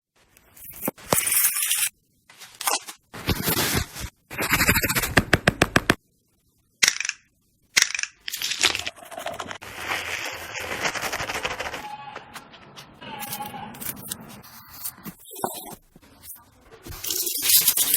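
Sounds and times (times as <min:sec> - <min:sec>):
crunching and scraping: 0:08.1 - 0:15.9.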